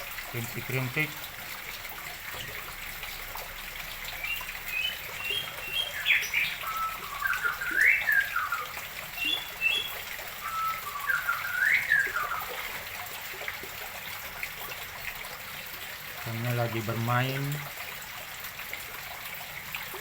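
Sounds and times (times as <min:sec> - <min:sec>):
water trickling into pond: 0:00.0 - 0:20.0
songbird whistling: 0:04.2 - 0:12.7.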